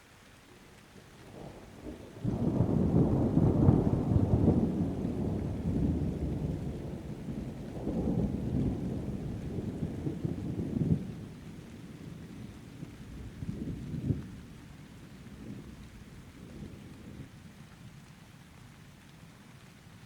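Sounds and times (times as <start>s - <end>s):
rain: 0.0s - 20.0s
thunderclap: 2.2s - 11.3s.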